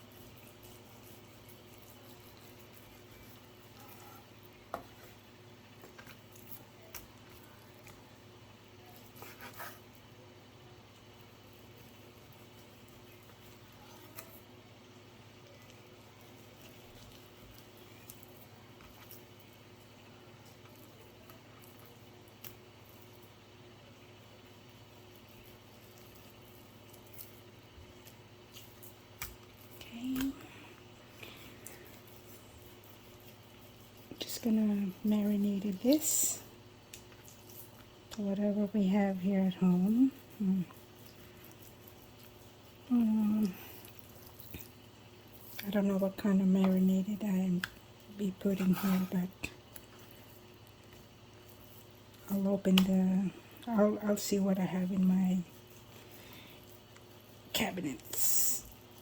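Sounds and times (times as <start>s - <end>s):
wet squishing of raw chicken: 24.7s - 38.2s.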